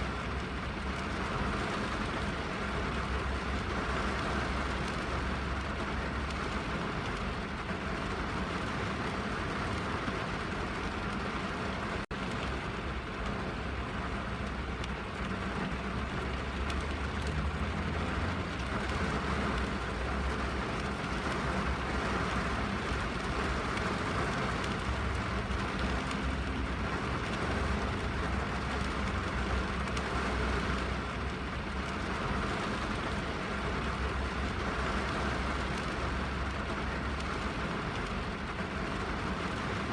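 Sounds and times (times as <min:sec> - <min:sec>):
rain on car roof: 0:00.0 - 0:39.9.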